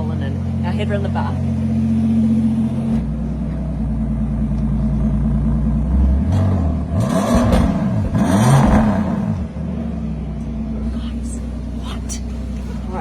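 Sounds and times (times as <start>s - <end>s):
car engine idling and revving: 0.0s - 13.0s
exhaust rush: 5.2s - 9.8s, 10.8s - 13.0s.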